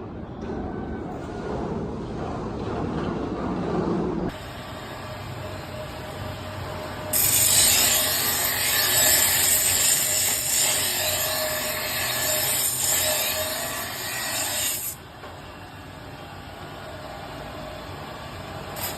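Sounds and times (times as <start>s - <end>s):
steel grinding on wheel: 7.1s - 15.0s.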